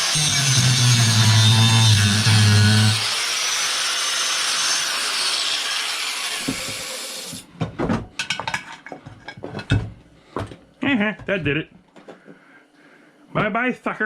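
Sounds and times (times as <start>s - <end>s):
power tool winding down whine: 0.0s - 7.3s.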